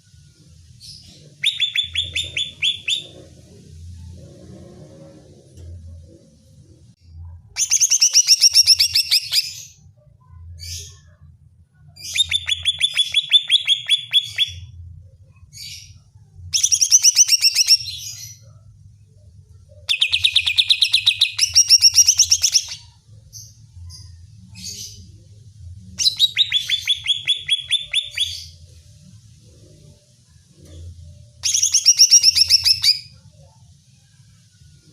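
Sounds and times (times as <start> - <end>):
faint low hum: 0.0 - 34.9
bird singing fast repeated notes: 1.3 - 3.2, 7.6 - 9.6, 12.0 - 14.7, 16.6 - 17.9, 19.9 - 22.8, 26.0 - 28.6, 31.4 - 33.1.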